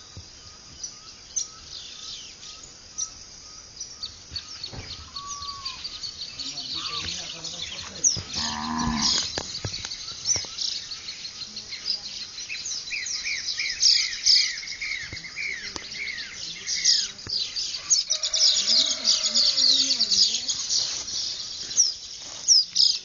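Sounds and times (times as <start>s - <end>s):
birds chirping: 0.0s - 23.0s
cow mooing: 8.4s - 9.2s.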